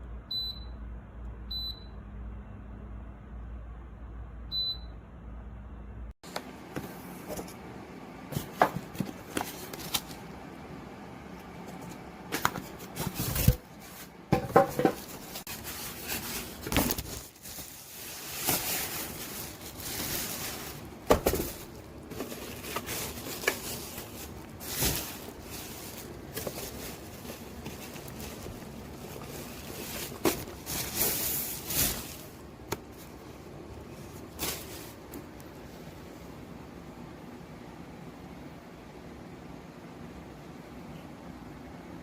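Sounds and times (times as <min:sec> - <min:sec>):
rustling: 0:11.6 - 0:35.4.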